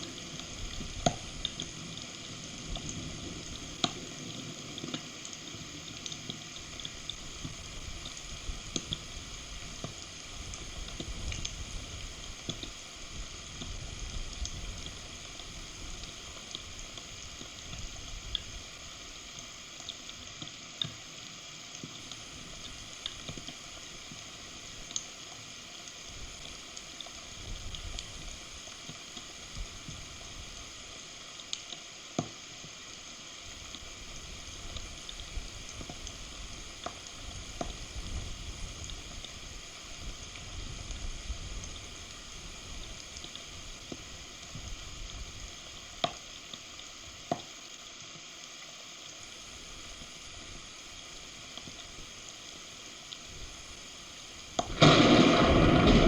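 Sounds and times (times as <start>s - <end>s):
heavy rain falling: 54.3s - 56.0s
wind on microphone: 54.6s - 56.0s.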